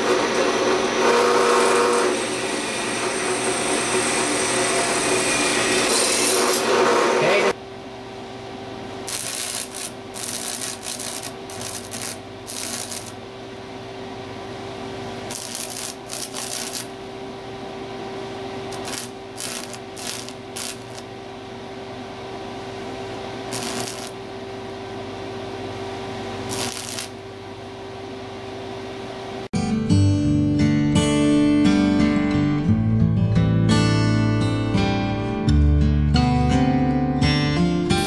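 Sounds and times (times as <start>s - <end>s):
drill press motor humming: 0.0s - 3.8s, 9.0s - 13.2s, 15.2s - 17.0s, 18.7s - 21.1s, 23.5s - 24.2s, 26.4s - 27.2s
drill bit scraping metal plate: 5.4s - 7.2s, 9.1s - 13.2s, 18.8s - 21.0s.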